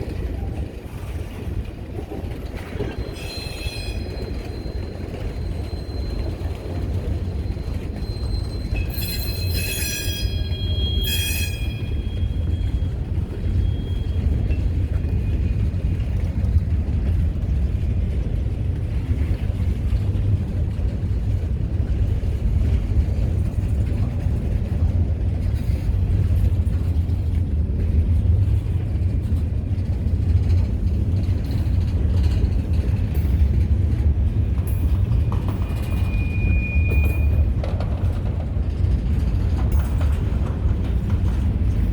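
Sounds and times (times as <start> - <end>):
train wheel squeal: 0.0 - 18.2, 29.8 - 41.9
train rumbling on rails: 0.0 - 41.9.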